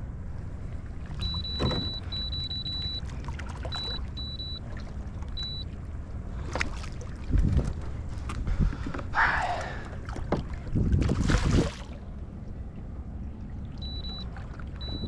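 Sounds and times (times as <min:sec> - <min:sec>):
water: 0:00.0 - 0:15.0
wind: 0:00.0 - 0:15.0
high electronic beeps: 0:01.2 - 0:03.0, 0:03.7 - 0:04.6, 0:05.4 - 0:05.6, 0:13.8 - 0:14.2.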